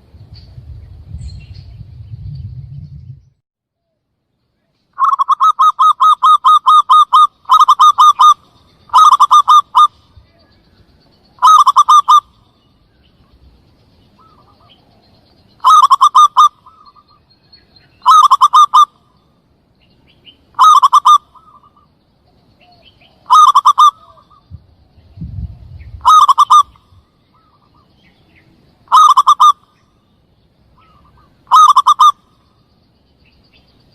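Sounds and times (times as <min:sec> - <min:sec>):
dove cooing: 0:05.0 - 0:10.5, 0:11.4 - 0:12.4, 0:15.6 - 0:17.1, 0:18.0 - 0:18.9, 0:20.6 - 0:21.8, 0:22.6 - 0:24.4, 0:26.0 - 0:27.8, 0:28.9 - 0:29.6, 0:30.8 - 0:32.2.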